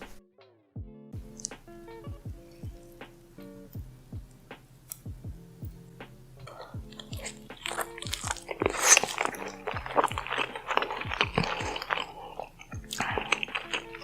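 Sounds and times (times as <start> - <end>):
background music with steady beat: 0.0 - 14.0
crunchy bites and wet chewing: 1.2 - 1.6, 6.4 - 14.0.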